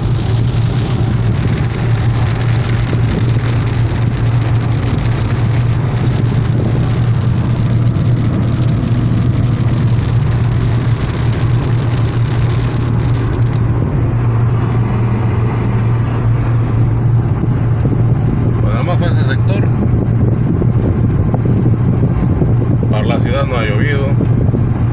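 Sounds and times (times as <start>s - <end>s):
rain hissing on wet road: 0.0s - 14.2s
car engine drone: 0.0s - 24.9s.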